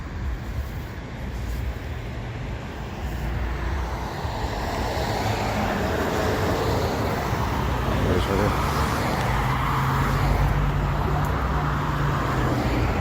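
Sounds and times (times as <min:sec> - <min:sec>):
subway train rumbling: 0:00.0 - 0:08.1.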